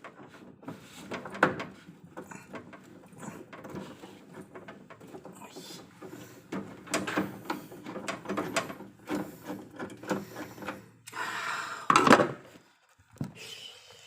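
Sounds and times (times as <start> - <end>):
handling knocks and scrapes: 0.0 - 10.9.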